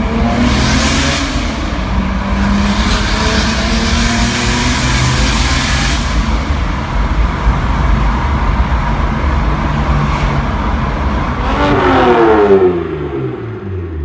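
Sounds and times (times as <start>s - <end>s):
car engine running hard: 0.0s - 14.0s.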